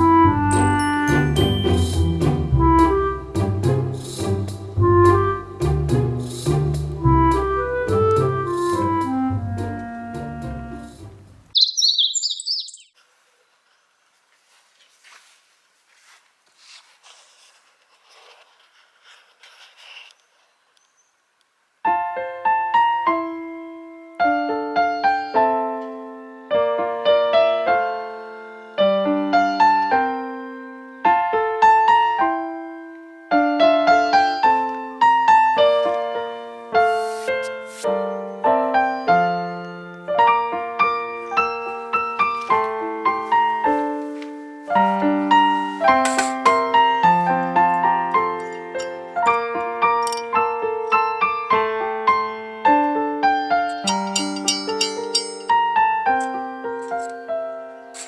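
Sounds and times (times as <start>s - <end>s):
solo piano melody: 0.0s - 11.6s, 21.9s - 58.0s.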